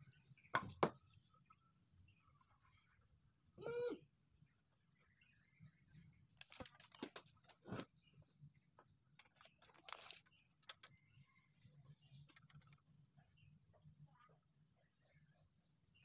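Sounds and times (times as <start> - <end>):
wooden blocks knocking on workbench: 0.6 - 1.0.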